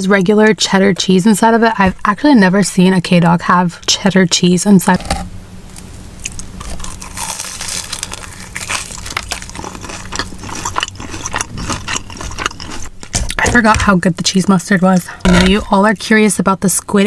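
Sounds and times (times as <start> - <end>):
crunchy bites into fried food: 6.2 - 13.4
chewing: 6.2 - 13.6.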